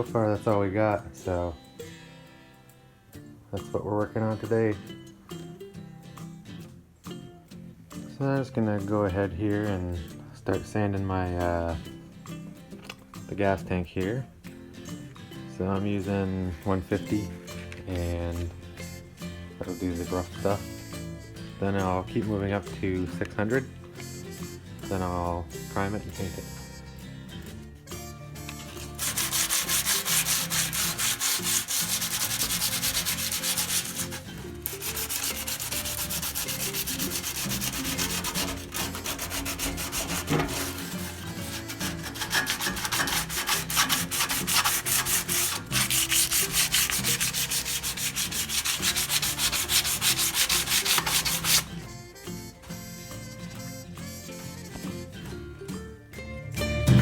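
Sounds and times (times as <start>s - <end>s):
sandpaper rasping on metal: 28.6s - 51.7s.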